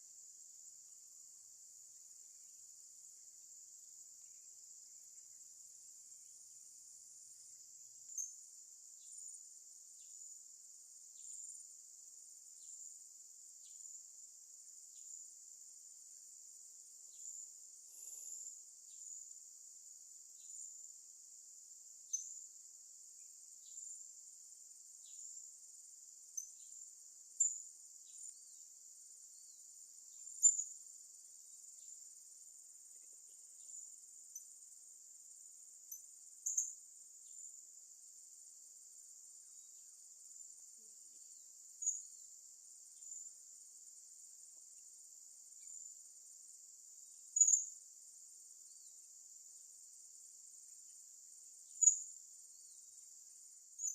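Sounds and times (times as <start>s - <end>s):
crickets chirring: 0.0s - 53.9s.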